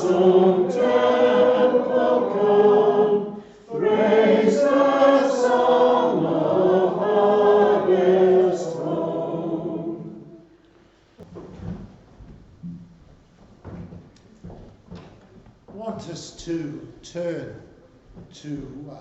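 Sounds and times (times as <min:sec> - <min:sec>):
group singing a hymn: 0:00.0 - 0:10.6.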